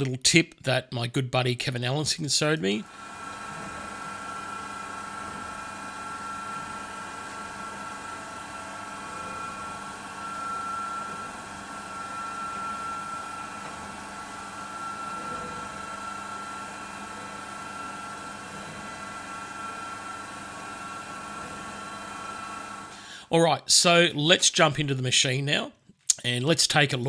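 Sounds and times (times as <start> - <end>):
milling machine whining: 2.6 - 23.2.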